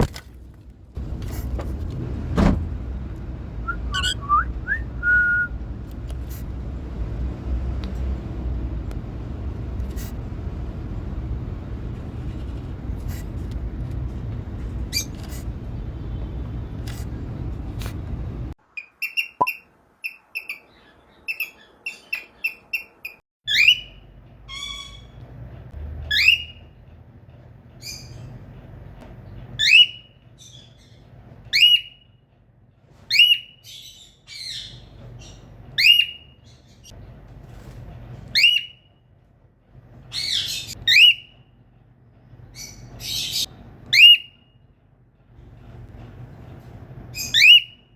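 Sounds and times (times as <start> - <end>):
cockatiel calling: 3.9 - 4.4.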